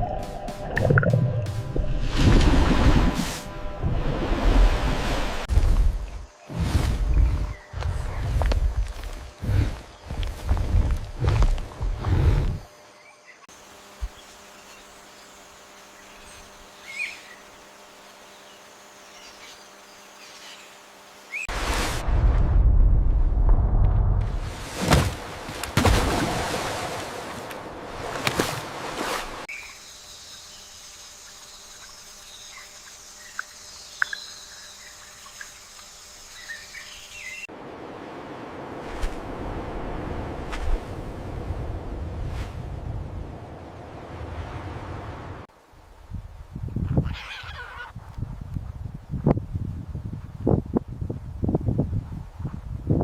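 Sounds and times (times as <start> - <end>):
loud low sound: 0.0 - 5.4
insect chorus: 5.5 - 21.5, 29.5 - 37.5
insect buzzing: 29.5 - 37.4.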